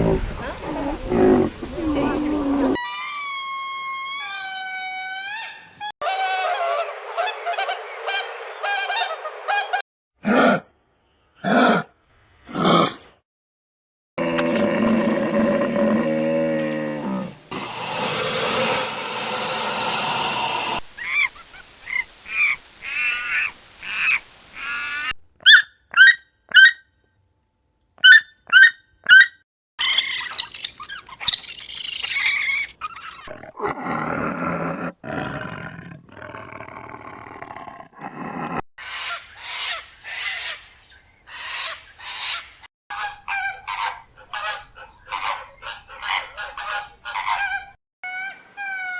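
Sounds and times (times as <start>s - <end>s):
harsh roar-like animal call: 14.2s - 20.8s, 33.0s - 38.6s.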